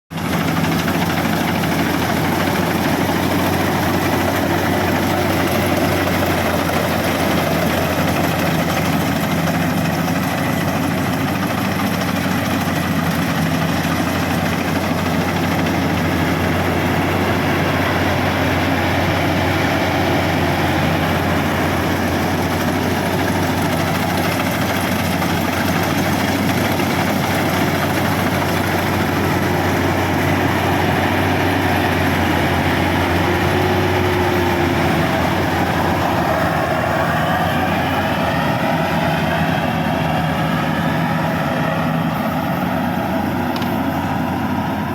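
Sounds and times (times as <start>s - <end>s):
combine harvester engine droning: 0.1s - 44.9s.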